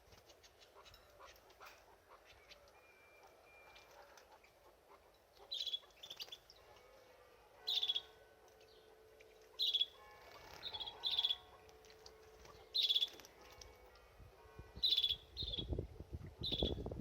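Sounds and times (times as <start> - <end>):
canary trilled chirps: 5.4 - 6.6, 7.6 - 8.9, 9.5 - 11.6, 12.4 - 13.6, 14.8 - 15.8, 16.4 - 16.8.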